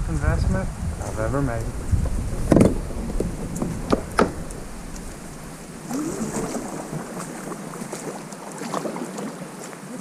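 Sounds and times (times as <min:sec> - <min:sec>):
wind rumbling on microphone: 0:00.0 - 0:08.9
heavy knock: 0:01.0 - 0:05.4.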